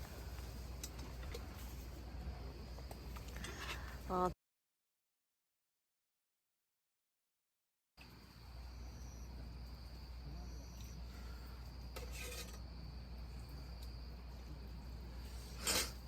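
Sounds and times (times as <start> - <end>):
crickets chirping: 0.0 - 4.3, 8.0 - 16.0.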